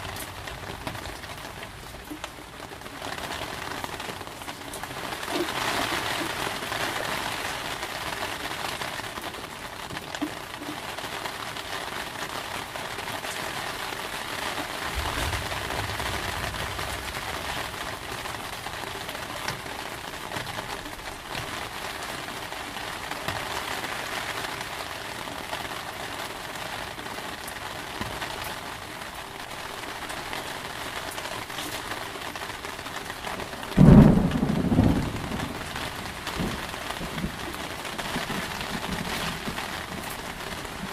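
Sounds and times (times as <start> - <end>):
heavy rain: 0.0 - 40.9
low rumble of thunder: 14.8 - 18.9, 33.7 - 40.9
loud thunder clap: 14.9 - 18.5, 33.8 - 40.0.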